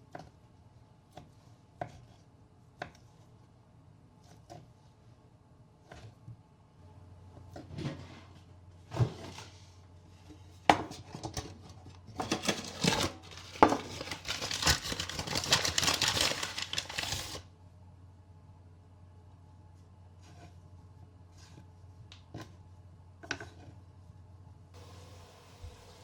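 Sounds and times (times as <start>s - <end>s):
rustling and scraping: 7.4s - 17.4s.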